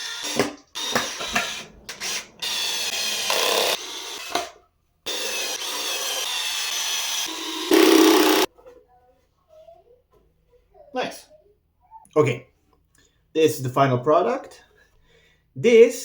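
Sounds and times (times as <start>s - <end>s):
power tool running: 0.0s - 4.5s, 5.1s - 8.5s.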